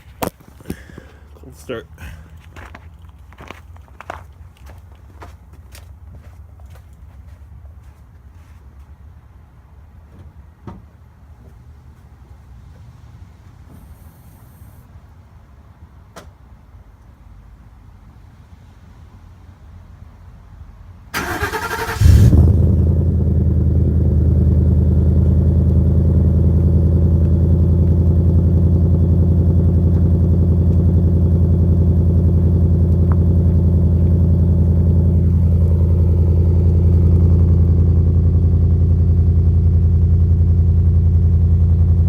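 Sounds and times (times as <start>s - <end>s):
truck engine idling: 21.2s - 42.0s.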